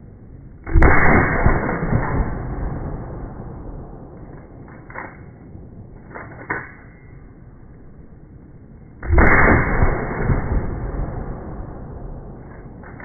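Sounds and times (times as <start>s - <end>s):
loud gunshot with echo: 0.7s - 4.1s, 9.0s - 12.4s.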